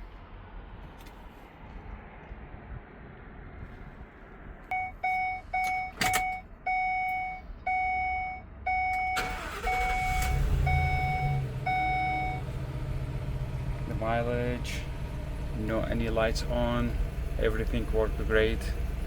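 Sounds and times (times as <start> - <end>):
ignition click: 4.7 - 7.8, 8.8 - 12.0
dashboard warning chime: 4.7 - 12.5
truck engine cranking and idling: 4.7 - 19.0.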